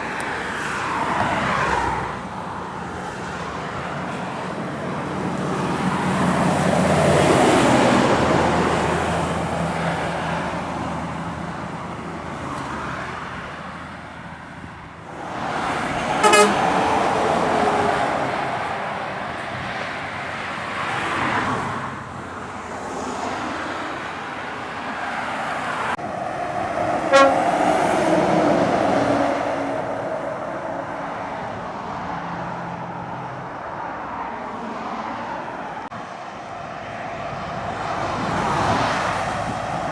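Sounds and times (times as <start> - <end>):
heavy lorries climbing: 0.0 - 22.9
air horn toots: 16.0 - 17.0, 27.0 - 27.8.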